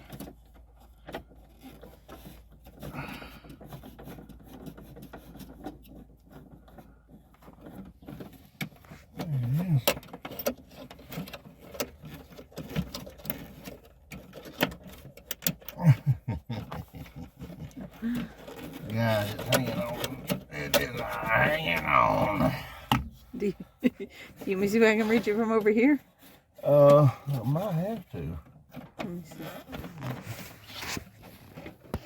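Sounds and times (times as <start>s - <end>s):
hand tool clicking and scraping: 0.0s - 23.5s.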